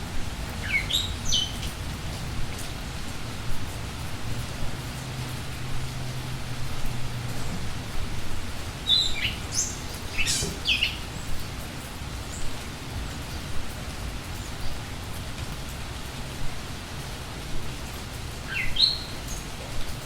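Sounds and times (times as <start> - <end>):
steady rain falling: 0.0 - 20.0
songbird chirping: 0.6 - 1.7, 8.8 - 11.4, 18.4 - 20.0.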